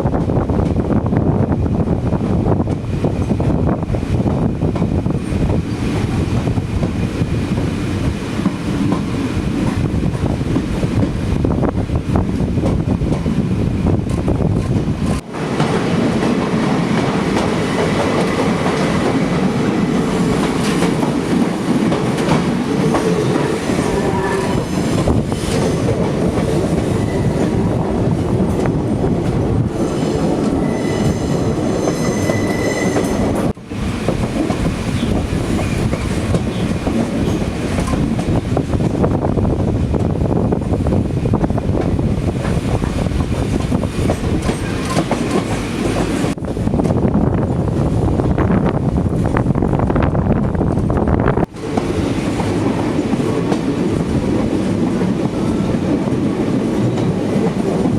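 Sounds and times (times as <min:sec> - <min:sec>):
train wheels clattering on rails: 0:00.0 - 0:47.6, 0:49.1 - 0:57.9
high wheel squeals: 0:30.6 - 0:33.3.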